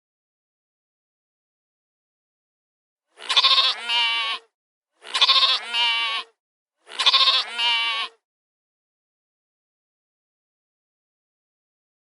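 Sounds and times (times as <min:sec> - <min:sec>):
sheep bleating: 0:03.2 - 0:08.2.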